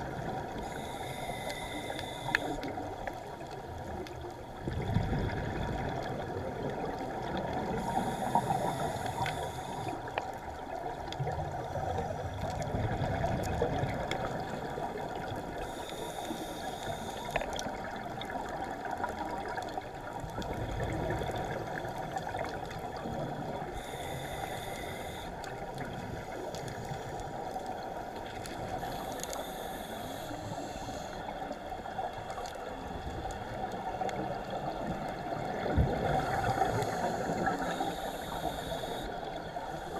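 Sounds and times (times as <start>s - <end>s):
underwater bubbling and gurgling: 0.0s - 39.9s
high hiss of regulator breaths: 0.6s - 2.7s, 7.8s - 10.0s, 15.6s - 17.4s, 23.8s - 25.4s, 28.8s - 31.3s, 36.4s - 39.9s.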